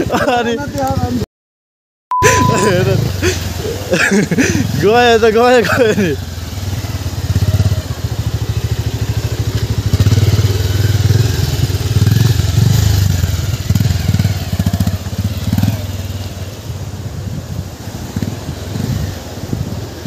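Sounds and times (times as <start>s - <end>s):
motorcycle engine revving: 2.8s - 20.0s.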